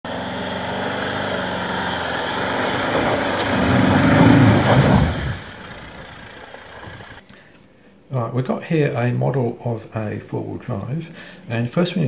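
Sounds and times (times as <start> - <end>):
vehicle engine climbing: 0.0 - 7.2.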